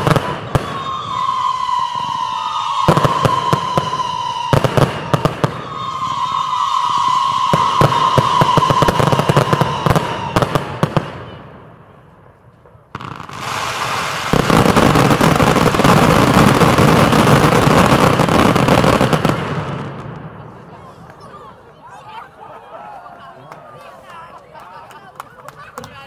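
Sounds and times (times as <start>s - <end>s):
fireworks whistling: 0.0s - 12.0s, 12.7s - 20.5s
fireworks cracking: 0.0s - 21.2s
dense fireworks crackling: 0.0s - 21.4s.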